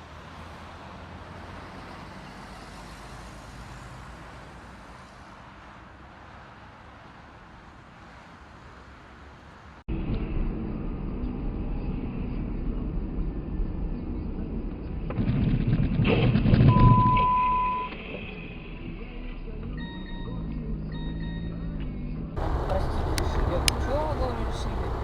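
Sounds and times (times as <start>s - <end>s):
engine and road noise rumble: 0.0s - 25.0s
steady beep: 16.7s - 18.0s
clicks: 22.8s - 24.0s.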